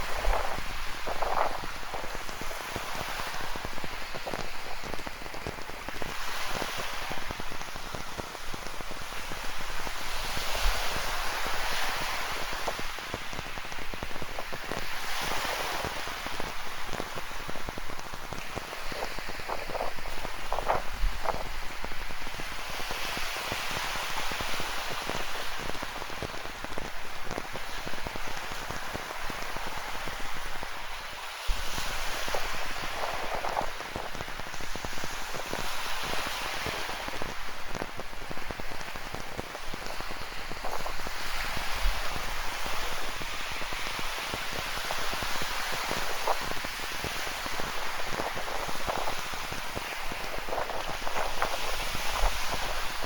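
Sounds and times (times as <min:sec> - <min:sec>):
rain pattering: 0:16.0 - 0:22.4, 0:47.5 - 0:52.8.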